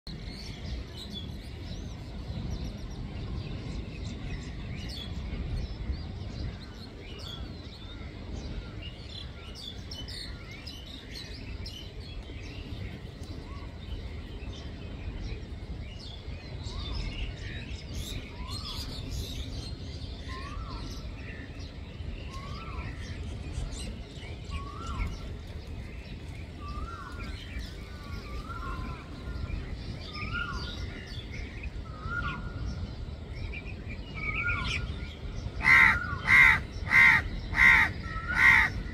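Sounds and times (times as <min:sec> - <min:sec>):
birds chirping and calling: 0:00.1 - 0:38.9
steady low rumble: 0:00.1 - 0:38.9
rising-and-falling bird call: 0:35.6 - 0:38.9.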